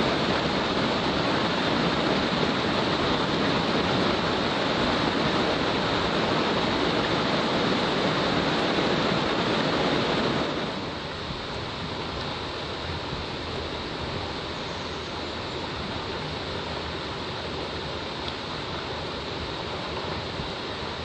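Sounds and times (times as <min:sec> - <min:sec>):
river water rushing over rocks: 0:00.0 - 0:21.0.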